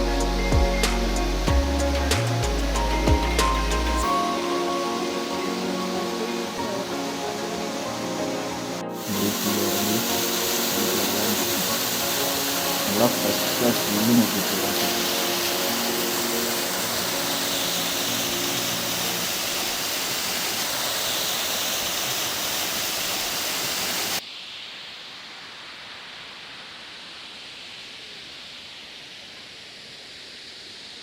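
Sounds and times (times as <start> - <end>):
waterfall roaring: 1.9 - 24.6.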